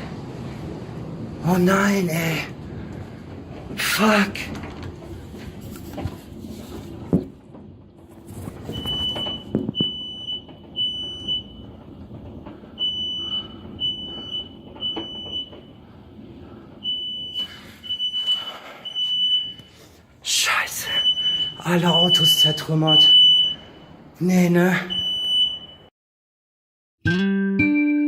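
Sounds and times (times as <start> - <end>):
electronic alarm beeping: 8.7 - 11.8, 12.8 - 15.8, 16.8 - 19.8, 20.9 - 24.0, 24.9 - 25.9.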